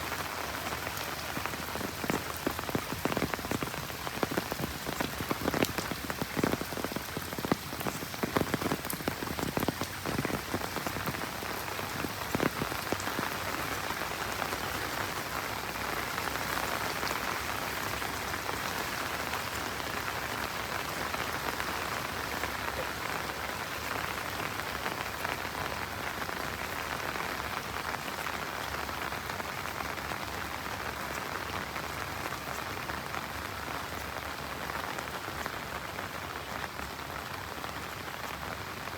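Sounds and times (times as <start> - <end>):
large raindrops tapping: 0.0 - 38.9
steady rain falling: 0.0 - 38.9.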